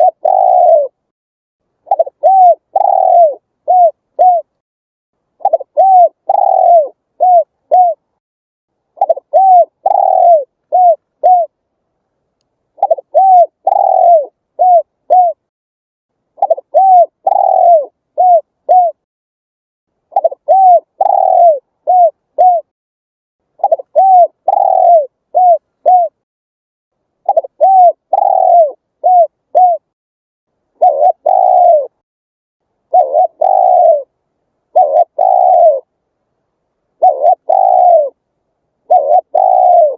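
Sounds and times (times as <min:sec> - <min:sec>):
dove cooing: 0:00.0 - 0:01.0, 0:01.8 - 0:04.5, 0:05.4 - 0:08.1, 0:09.0 - 0:11.6, 0:12.8 - 0:15.5, 0:16.4 - 0:19.0, 0:20.1 - 0:22.7, 0:23.6 - 0:26.2, 0:27.2 - 0:29.9, 0:30.8 - 0:32.0, 0:32.9 - 0:35.9, 0:37.0 - 0:38.2, 0:38.8 - 0:39.9.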